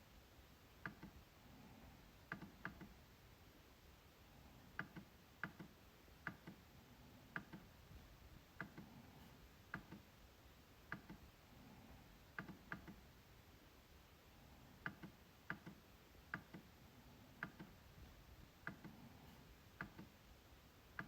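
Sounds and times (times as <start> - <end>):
quiet trackpad clicks: 0.8 - 1.2, 2.3 - 3.0, 4.8 - 6.6, 7.3 - 7.7, 9.7 - 10.0, 10.9 - 11.2, 12.4 - 13.0, 14.8 - 16.7, 17.4 - 17.8, 19.8 - 20.1.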